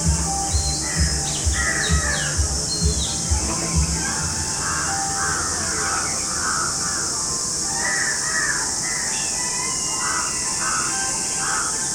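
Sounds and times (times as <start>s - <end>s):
steady high-pitched hiss: 0.0s - 11.9s
crows cawing: 0.8s - 2.5s, 3.8s - 9.0s, 10.0s - 11.9s.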